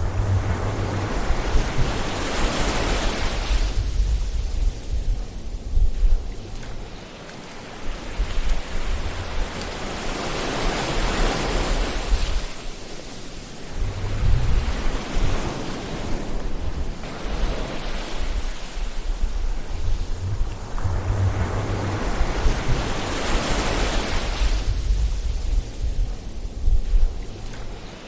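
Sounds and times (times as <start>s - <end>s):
low rumble: 0.0s - 6.8s, 13.7s - 15.6s, 18.3s - 28.0s
ocean waves breaking on shore: 0.0s - 28.0s.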